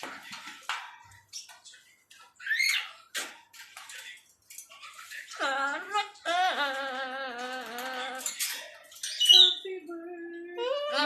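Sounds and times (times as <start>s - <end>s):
parrot singing: 5.3s - 8.4s, 9.1s - 11.0s.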